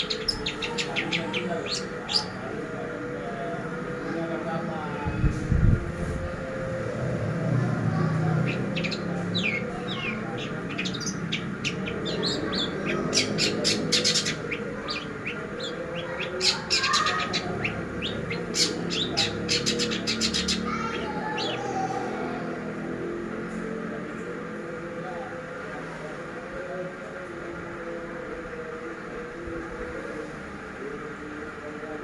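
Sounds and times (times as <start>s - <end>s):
bird chirping and trilling: 0.0s - 2.5s, 8.4s - 22.1s.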